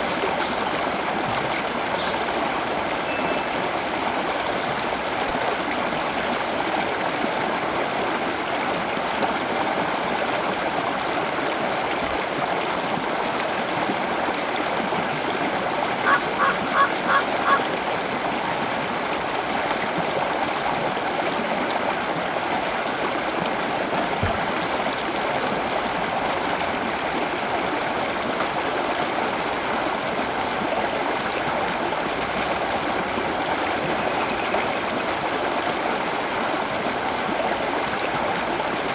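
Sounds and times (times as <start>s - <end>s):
running water: 0.0s - 38.9s
bird honking calls: 16.0s - 17.9s.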